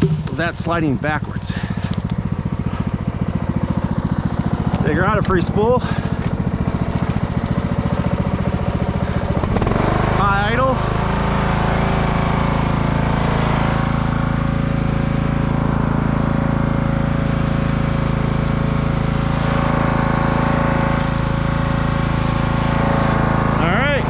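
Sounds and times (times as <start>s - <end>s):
engine running at high idle: 0.0s - 24.0s.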